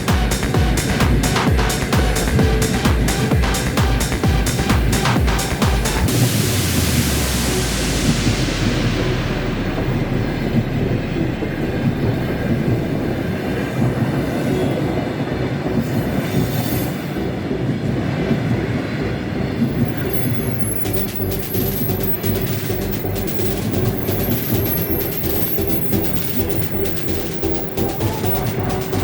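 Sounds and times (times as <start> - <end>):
train rumbling past on rails: 0.0 - 21.4.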